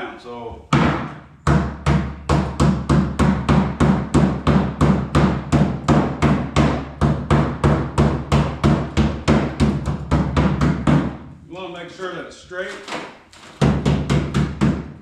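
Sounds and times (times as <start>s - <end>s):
hammer blows on sheet metal: 0.7s - 11.3s.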